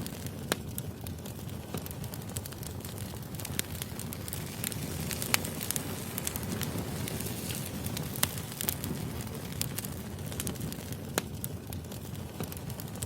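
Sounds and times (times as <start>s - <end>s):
firewood crackling and popping: 0.0s - 13.0s
low rumble of flames: 0.0s - 13.0s.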